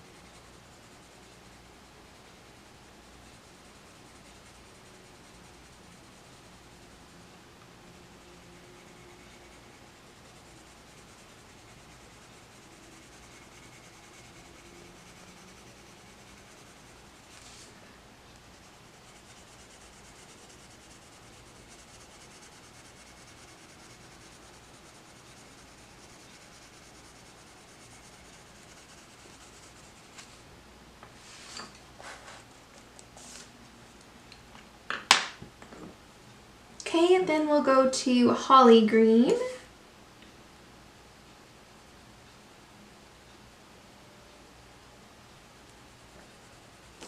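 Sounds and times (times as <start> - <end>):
pencil scratching on paper: 0.2 - 1.6, 3.3 - 6.9, 8.4 - 17.7, 18.5 - 30.4.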